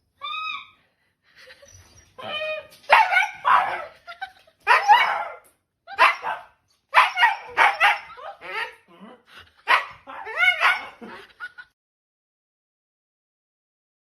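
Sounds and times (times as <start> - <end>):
dog barking: 2.9 - 3.9, 4.7 - 5.4, 6.0 - 8.2, 9.7 - 11.0.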